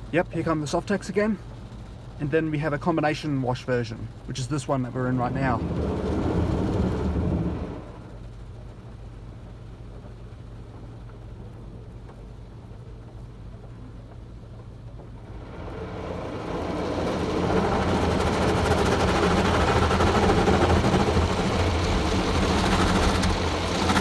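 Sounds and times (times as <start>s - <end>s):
low machine hum: 0.0s - 24.0s
car wash brushes scrubbing: 4.6s - 8.1s, 15.3s - 24.0s.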